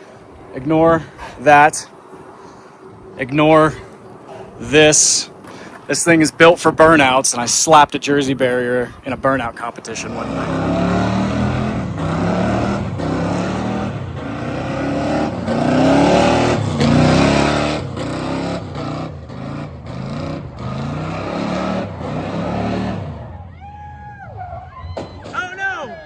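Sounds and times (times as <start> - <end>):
dense rushing noise: 0.0 - 14.4
engine revving hard: 9.9 - 23.3.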